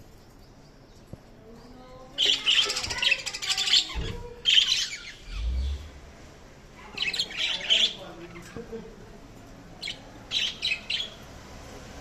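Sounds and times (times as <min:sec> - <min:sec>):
budgerigars chirping: 0:06.9 - 0:08.6, 0:09.8 - 0:11.2.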